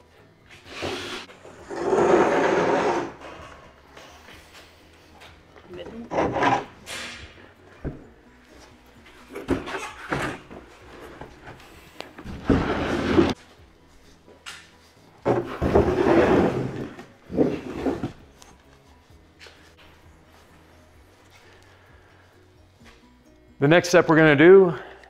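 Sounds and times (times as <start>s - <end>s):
plastic sheets scraping on wood: 0.7s - 3.6s, 12.4s - 13.4s.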